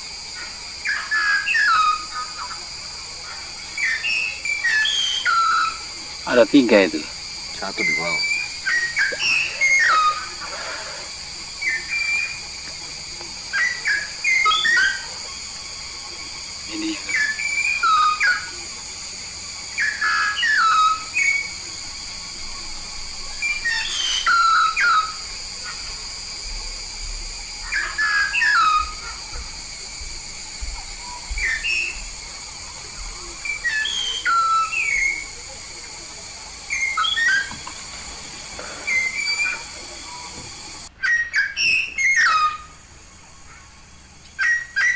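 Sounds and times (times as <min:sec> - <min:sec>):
high-pitched whine: 0:00.0 - 0:40.9
starling whistled calls: 0:00.0 - 0:44.9.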